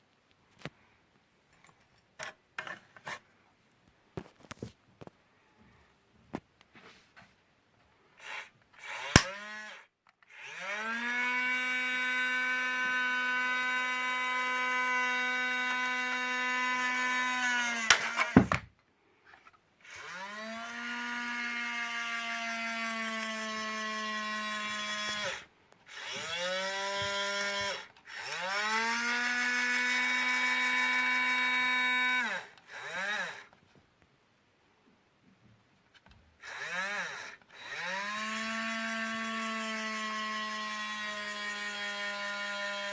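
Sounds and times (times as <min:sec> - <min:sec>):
toy electric motor whining: 0:08.2 - 0:18.6, 0:19.3 - 0:33.6, 0:36.4 - 0:42.9.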